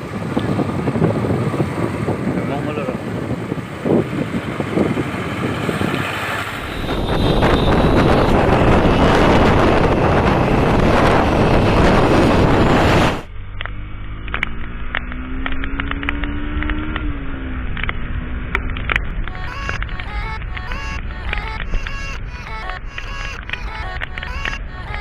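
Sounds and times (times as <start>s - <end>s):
wind buffeting microphone: 0.0s - 13.3s, 17.9s - 25.0s
motorcycle engine: 0.5s - 25.0s
sharp ticks: 18.6s - 25.0s.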